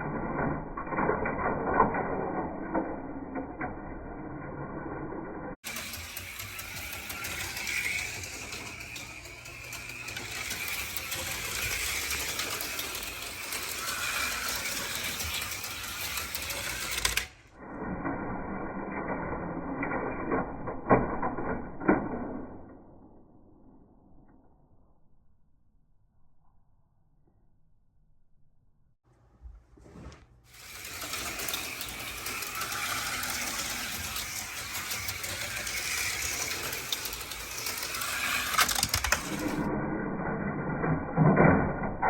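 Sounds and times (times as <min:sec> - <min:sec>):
small electric motors buzzing: 0:05.6 - 0:17.3, 0:30.5 - 0:39.6
slot cars rattling and clicking: 0:05.6 - 0:17.4, 0:30.5 - 0:39.7.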